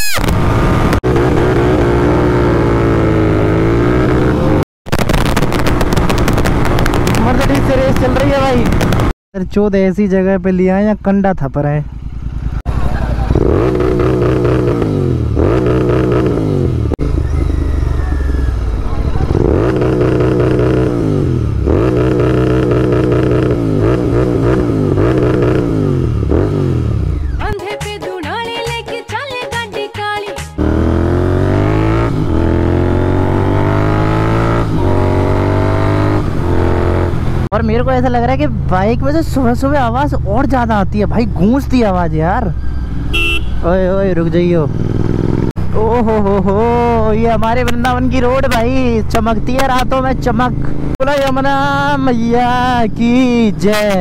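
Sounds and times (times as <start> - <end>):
motorcycle engine running loudly: 0.3 - 9.1, 11.9 - 27.4, 43.2 - 52.8
rough engine with rapid crackles: 4.9 - 9.2, 11.8 - 27.4, 44.0 - 54.0.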